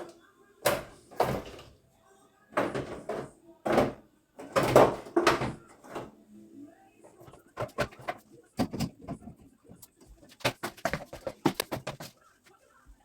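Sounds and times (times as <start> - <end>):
kitchen items knocking and clattering: 0.0 - 1.8, 2.5 - 6.2, 7.0 - 12.3.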